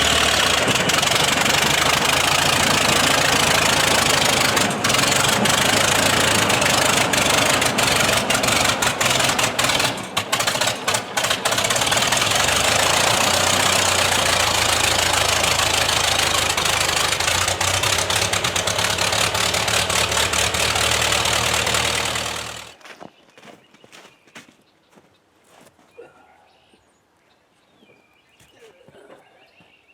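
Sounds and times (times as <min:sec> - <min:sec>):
tractor engine idling: 0:00.0 - 0:22.8.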